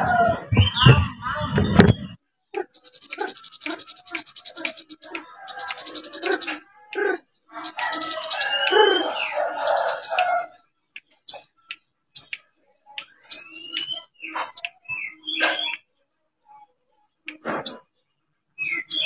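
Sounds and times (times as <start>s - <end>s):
birds chattering harshly: 0.0s - 19.0s
bird chirps and whistles: 0.5s - 2.2s, 13.3s - 15.8s, 18.6s - 19.0s.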